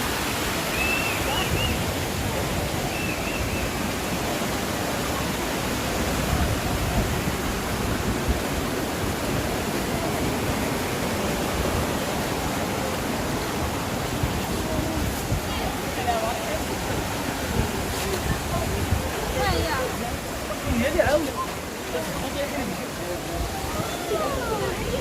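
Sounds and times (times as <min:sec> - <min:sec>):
fast-flowing water rushing: 0:00.0 - 0:25.0.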